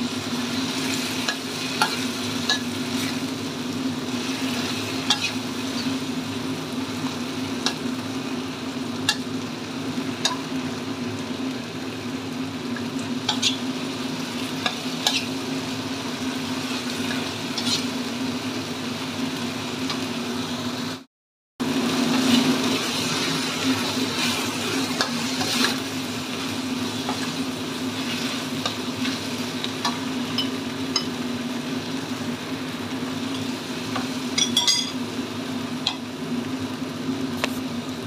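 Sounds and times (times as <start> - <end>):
sambal sizzling in wok: 0.0 - 38.0
metal spatula scraping pan: 17.6 - 17.9.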